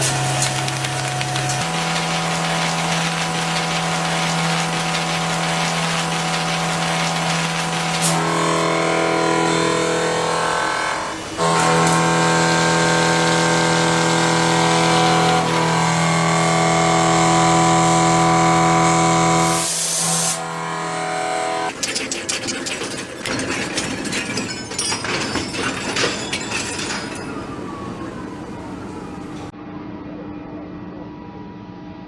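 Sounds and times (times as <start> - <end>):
crackling and clicking of metal cutting: 0.0 - 10.7, 11.4 - 17.6, 21.6 - 29.5
machine tool whining: 0.0 - 19.4, 20.4 - 29.5.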